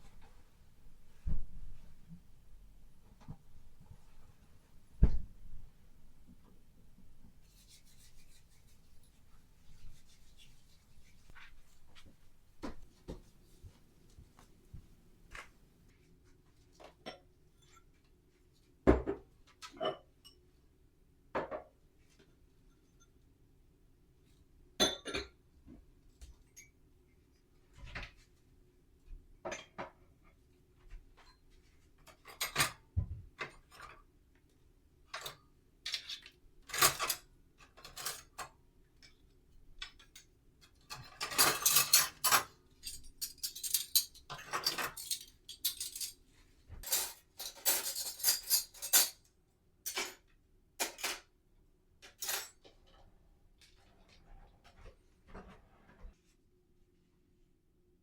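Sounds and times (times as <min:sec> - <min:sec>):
dishes and cutlery clattering: 0:19.0 - 0:20.4, 0:24.8 - 0:25.4, 0:32.0 - 0:32.8, 0:35.1 - 0:39.1, 0:39.8 - 0:46.2, 0:46.8 - 0:49.3, 0:49.9 - 0:51.3.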